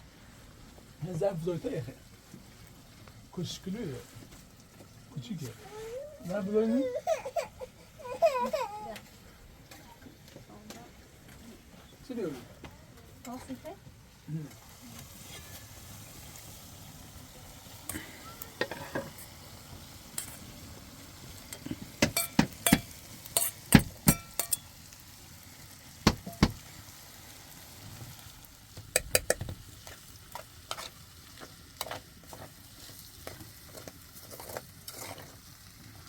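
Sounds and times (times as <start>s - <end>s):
faint steady hiss: 0.0s - 36.0s
utensils knocking on metal pots: 18.6s - 19.2s, 21.6s - 24.7s, 26.1s - 26.6s, 28.9s - 29.6s.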